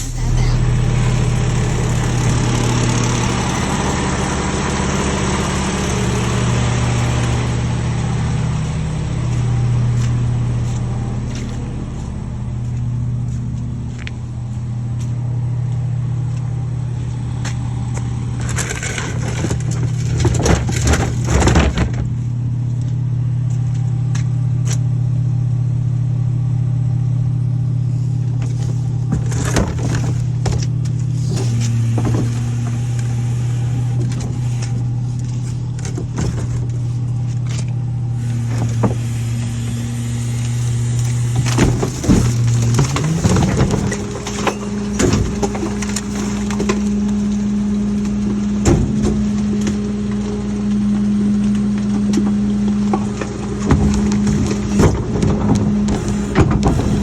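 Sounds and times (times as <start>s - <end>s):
garbage truck engine running: 0.0s - 57.0s
knocks and clatters: 18.4s - 22.2s, 28.4s - 39.2s, 40.2s - 50.3s
hiss: 38.2s - 42.1s.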